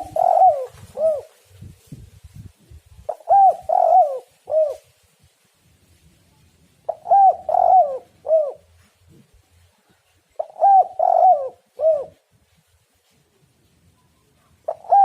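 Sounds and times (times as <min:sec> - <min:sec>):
dove cooing: 0:00.0 - 0:01.4, 0:03.1 - 0:04.9, 0:06.9 - 0:08.8, 0:10.4 - 0:12.2, 0:14.6 - 0:15.0.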